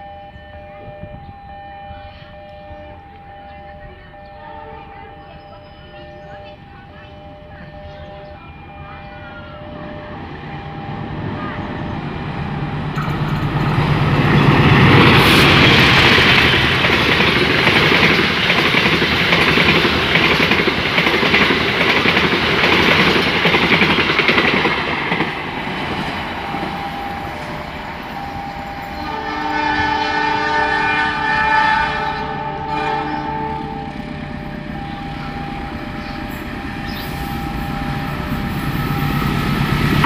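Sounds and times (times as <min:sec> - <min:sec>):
train wheels rumbling on rails: 0:00.0 - 0:40.0
train horn blast: 0:28.1 - 0:38.3.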